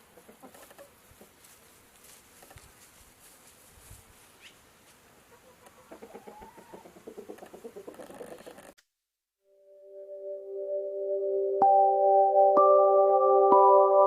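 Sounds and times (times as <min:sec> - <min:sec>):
soft hiss: 0:00.0 - 0:08.7.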